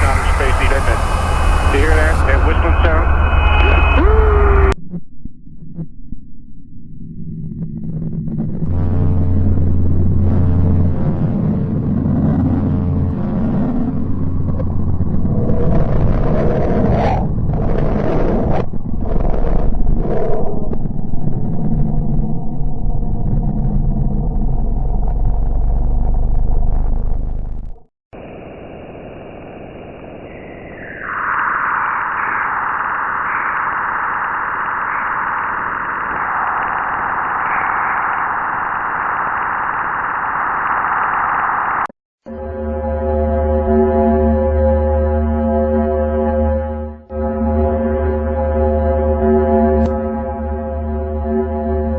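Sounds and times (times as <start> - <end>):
rushing swells: 0.0 - 4.8, 28.2 - 41.9
deep rumbling drone: 0.0 - 51.9.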